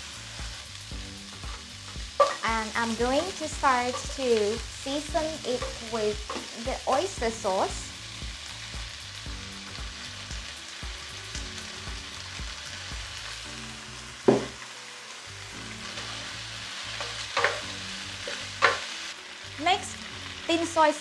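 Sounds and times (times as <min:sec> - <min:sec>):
faint background music with beat: 0:00.0 - 0:21.0
shrimp sizzling in a frying pan: 0:00.0 - 0:21.0
sharp knock: 0:14.3 - 0:14.6.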